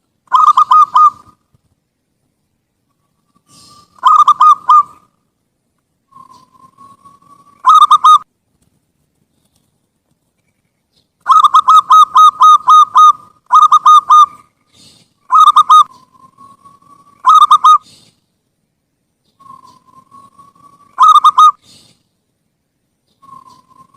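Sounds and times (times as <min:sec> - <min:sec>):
dove cooing: 0:00.3 - 0:01.4, 0:03.4 - 0:05.1, 0:06.1 - 0:08.2, 0:11.3 - 0:18.1, 0:19.4 - 0:22.0.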